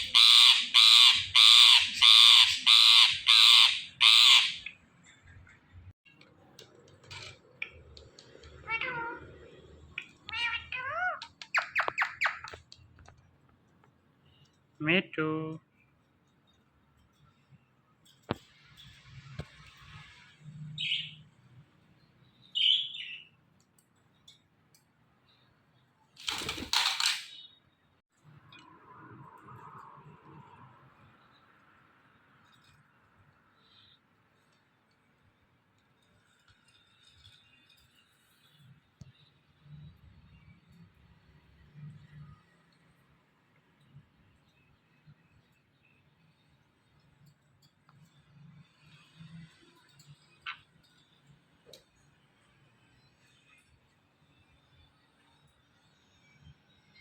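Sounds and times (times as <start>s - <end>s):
parakeet screeching calls: 0.0s - 4.7s, 10.3s - 12.6s.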